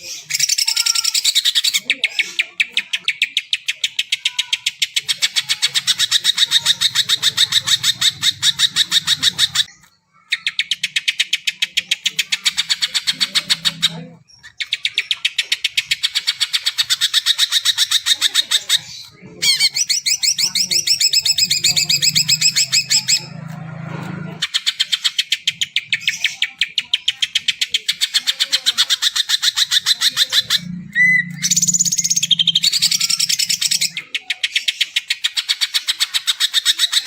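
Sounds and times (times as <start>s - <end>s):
bird singing high chirps: 24.4s - 37.0s.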